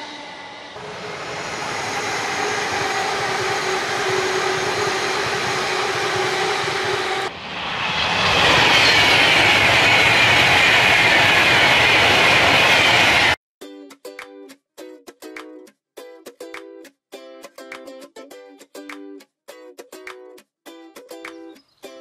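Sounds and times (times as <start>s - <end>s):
falling whine: 0.0s - 13.4s
train hum: 0.0s - 13.4s
train wheels rushing on rails: 0.0s - 13.4s.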